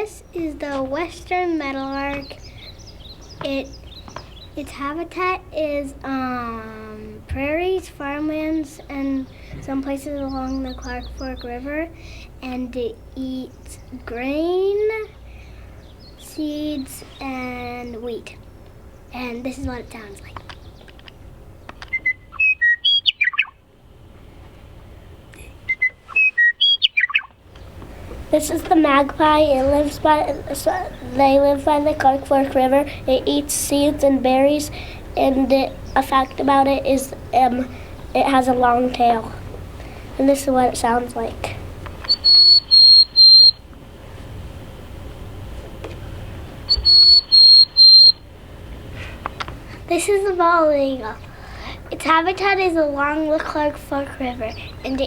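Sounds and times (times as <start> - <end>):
meadowlark song: 0.0 - 55.0
short high whistled bird notes: 25.7 - 27.3, 42.1 - 43.6, 46.7 - 48.2.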